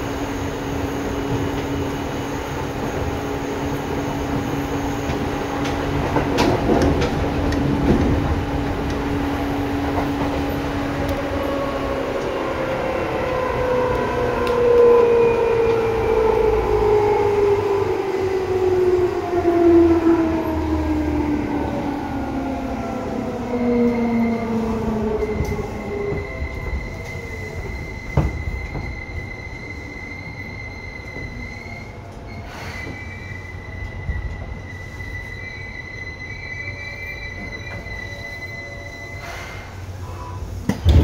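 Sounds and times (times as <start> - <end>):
high squeal: 23.7 - 40.6.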